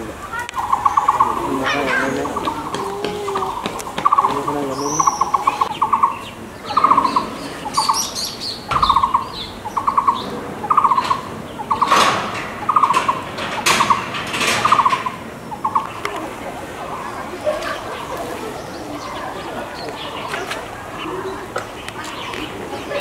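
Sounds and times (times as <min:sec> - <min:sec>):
faint high bird chirps: 0:00.3 - 0:12.0
bird rattling trill call: 0:00.3 - 0:16.0.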